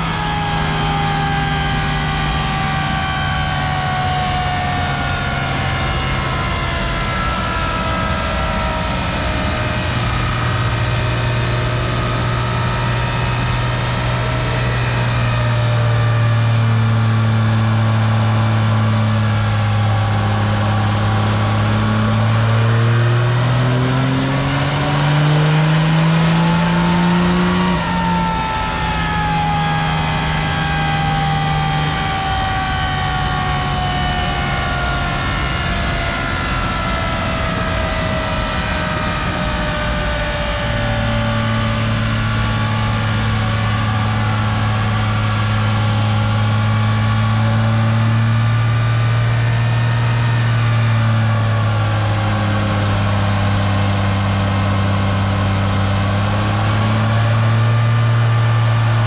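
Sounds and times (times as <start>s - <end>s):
truck engine running: 0.0s - 59.0s
faint high whistle: 11.2s - 34.7s, 46.4s - 59.0s.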